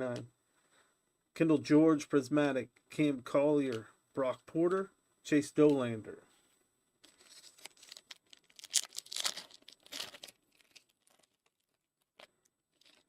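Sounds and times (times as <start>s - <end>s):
foil wrapper crinkling and tearing: 7.1s - 13.0s.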